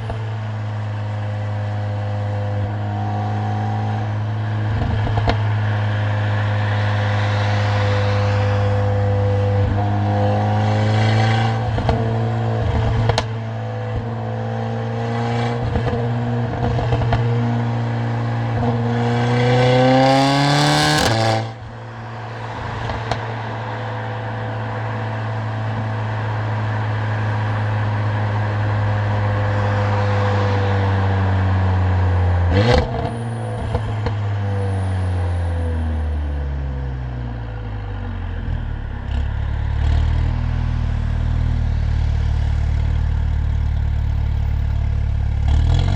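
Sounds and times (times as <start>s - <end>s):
car engine and loud exhaust: 0.0s - 45.9s
exhaust crack: 37.9s - 45.9s.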